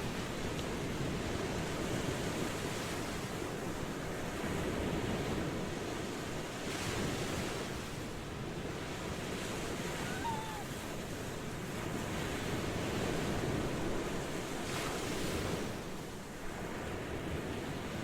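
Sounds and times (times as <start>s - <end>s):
ocean waves washing: 7.0s - 15.9s.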